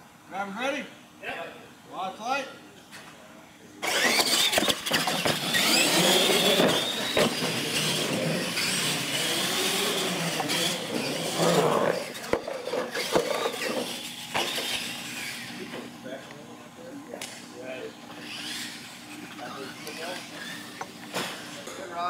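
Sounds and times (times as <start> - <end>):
toy truck motors whining: 3.8 - 15.9, 18.1 - 21.6
tyre noise on concrete: 4.1 - 9.3.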